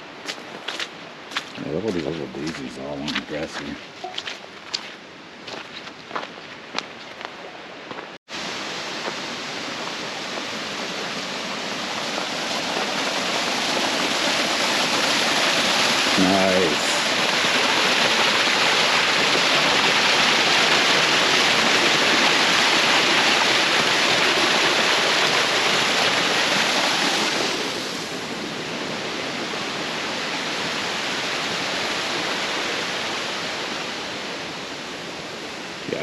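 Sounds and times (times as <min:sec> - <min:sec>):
water rushing down waterfall: 0:08.3 - 0:36.0.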